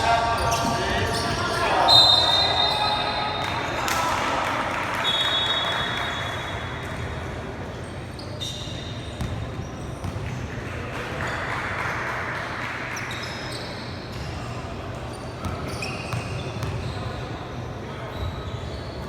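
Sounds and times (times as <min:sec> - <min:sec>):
sneaker squeaks: 0:00.0 - 0:03.6, 0:05.0 - 0:10.6, 0:12.9 - 0:19.0
murmur of spectators: 0:00.0 - 0:19.0
basketball bouncing: 0:09.2 - 0:10.3.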